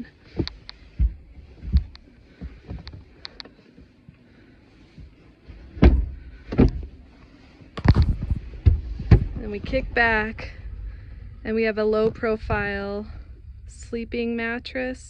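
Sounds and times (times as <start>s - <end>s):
knocks and thumps of bed panels: 5.0s - 7.0s, 7.8s - 9.5s.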